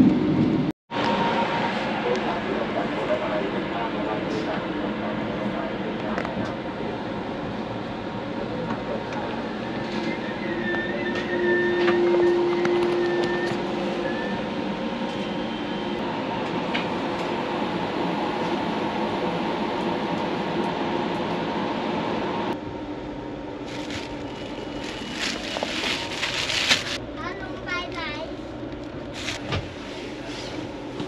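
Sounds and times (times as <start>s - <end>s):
train carriage rumble and rattle: 0.0s - 31.0s
crinkling rustle: 23.7s - 27.0s, 29.2s - 29.4s.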